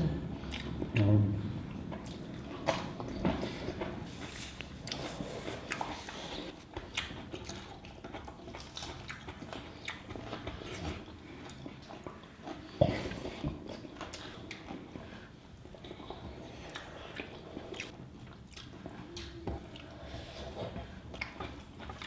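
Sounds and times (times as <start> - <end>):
wet chewing and lip smacks: 5.6 - 15.0, 15.6 - 22.0.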